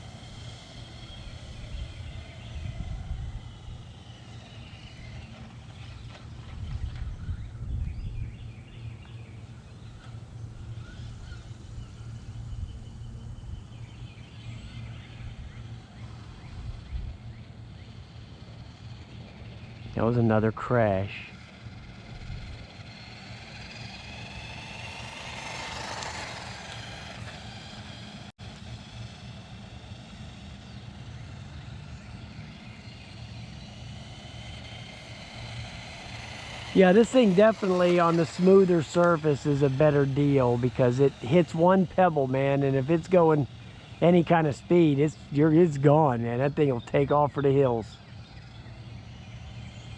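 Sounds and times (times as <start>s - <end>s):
electric motor whine: 0.0s - 49.9s
tyres rumbling over ground: 13.8s - 49.9s.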